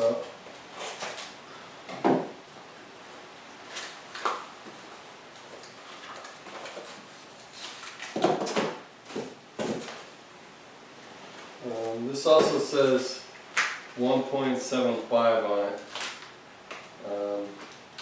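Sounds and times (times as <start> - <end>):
cardboard packaging rustling: 3.0 - 10.1.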